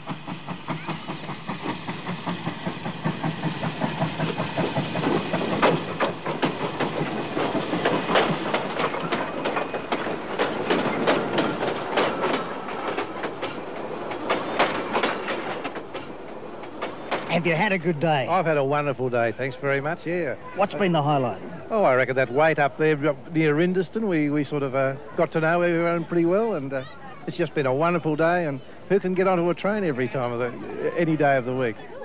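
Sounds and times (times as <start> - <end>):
wheels clicking over rail joints: 0.0 - 18.8.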